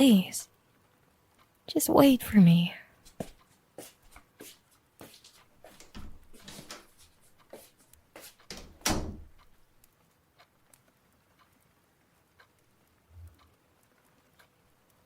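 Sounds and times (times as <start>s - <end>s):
soft footsteps: 3.0s - 9.4s.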